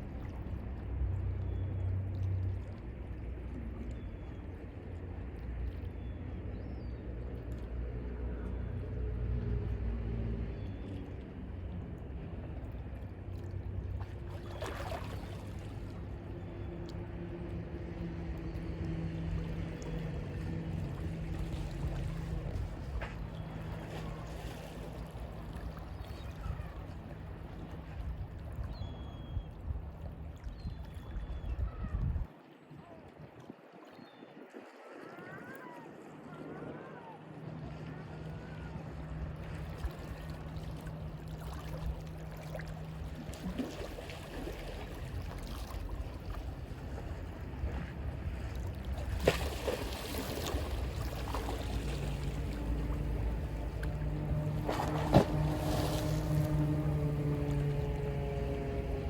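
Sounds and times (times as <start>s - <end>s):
faint bird calls: 25.8s - 27.2s, 30.9s - 32.2s, 34.8s - 38.9s
waves washing ashore: 34.6s - 59.0s.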